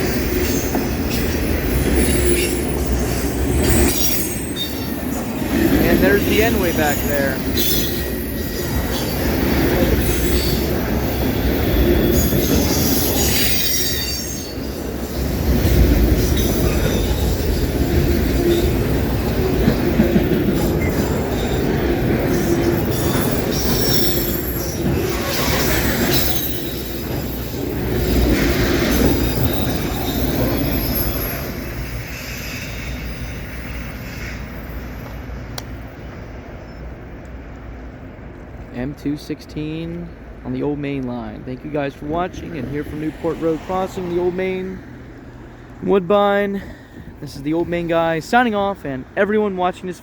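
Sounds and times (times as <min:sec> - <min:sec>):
high wheel squeal: 0:00.0 - 0:19.4, 0:20.6 - 0:35.3
steel wheels rumbling on rail: 0:00.0 - 0:38.7, 0:41.0 - 0:50.0.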